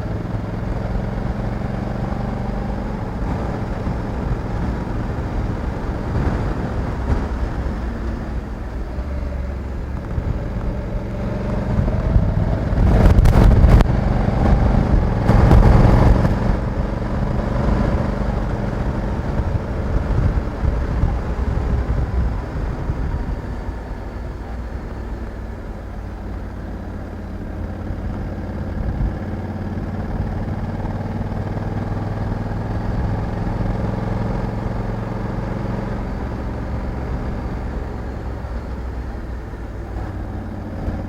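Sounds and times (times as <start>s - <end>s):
motorcycle engine running: 0.0s - 41.0s
wind rushing: 1.6s - 23.9s.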